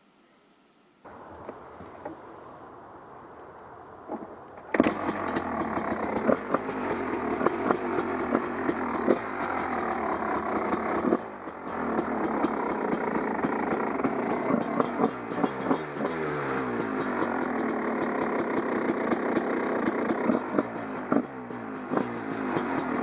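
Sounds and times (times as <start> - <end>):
motorcycle engine revving: 4.7 - 23.0.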